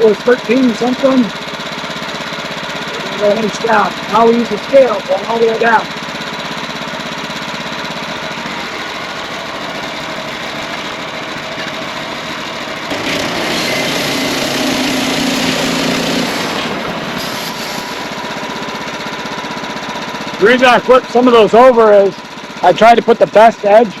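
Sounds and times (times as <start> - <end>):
sawmill engine running: 0.0 - 24.0
loud hissing with low hum: 12.8 - 18.4.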